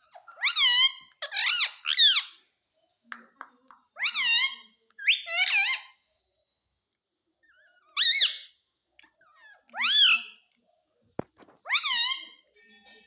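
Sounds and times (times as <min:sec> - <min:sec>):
parrot calling: 0:00.1 - 0:02.4, 0:04.0 - 0:06.0, 0:07.5 - 0:08.6, 0:09.2 - 0:10.4, 0:11.6 - 0:12.5.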